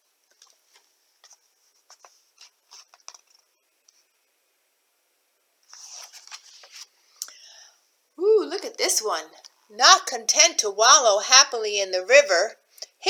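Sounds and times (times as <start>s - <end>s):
page turning rustle: 0.3s - 4.0s, 5.7s - 7.0s
soft ticks and rubs: 0.3s - 4.2s.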